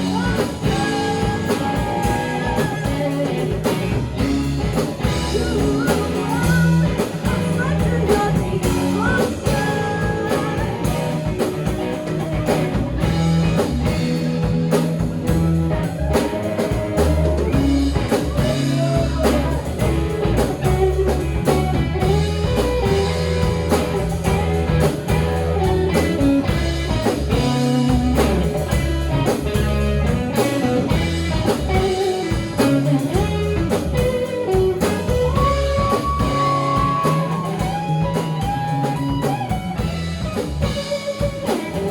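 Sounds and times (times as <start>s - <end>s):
bass guitar: 0.0s - 41.9s
drum kit: 0.0s - 41.9s
electric guitar lines: 0.0s - 41.9s.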